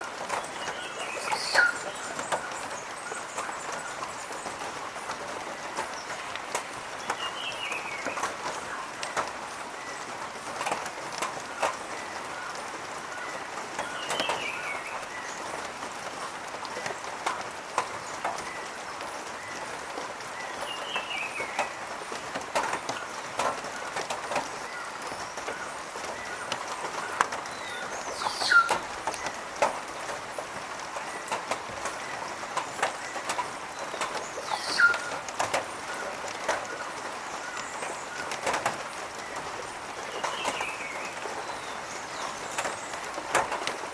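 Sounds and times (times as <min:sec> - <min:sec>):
birds chattering: 0:00.2 - 0:43.9
sharp bird calls: 0:20.3 - 0:29.4, 0:30.9 - 0:43.2.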